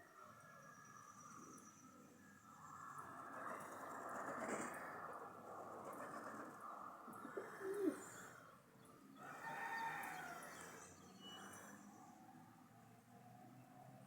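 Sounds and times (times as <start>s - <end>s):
rooster crowing: 9.2s - 10.8s.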